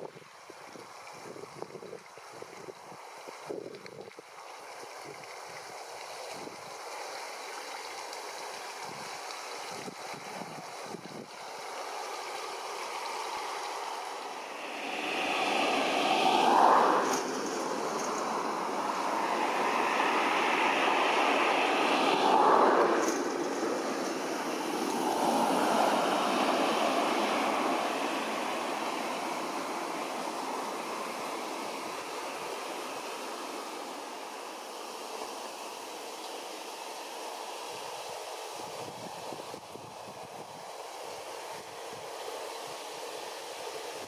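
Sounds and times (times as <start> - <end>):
vehicles passing: 11.6 - 35.3.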